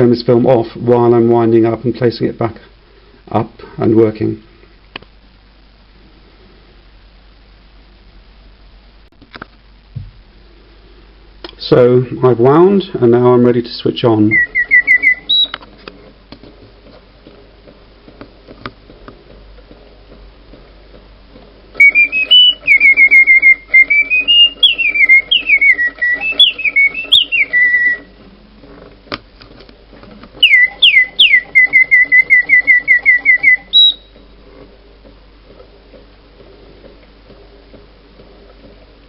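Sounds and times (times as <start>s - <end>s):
mechanical bird whistling birdsong: 14.1s - 15.6s, 21.8s - 28.2s, 30.4s - 34.2s.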